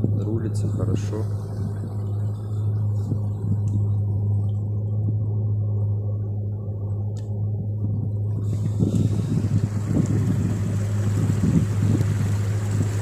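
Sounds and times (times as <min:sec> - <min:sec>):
water rushing: 0:00.0 - 0:04.5, 0:08.3 - 0:13.0
boat motor humming: 0:00.0 - 0:13.0
wind noise: 0:07.6 - 0:13.0.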